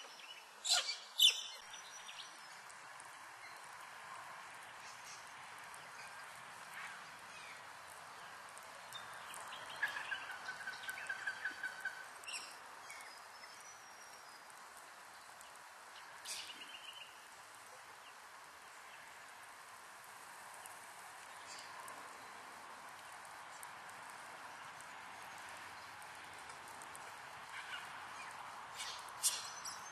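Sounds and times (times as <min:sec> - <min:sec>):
outdoor hiss: 0:00.0 - 0:29.9.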